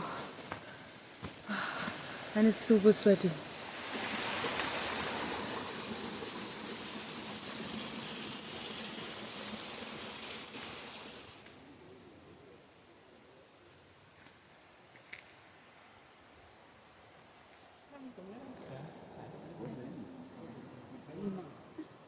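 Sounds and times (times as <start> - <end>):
faint high chirp: 0.0 - 4.6, 11.5 - 18.1
forest insects droning: 0.0 - 22.0.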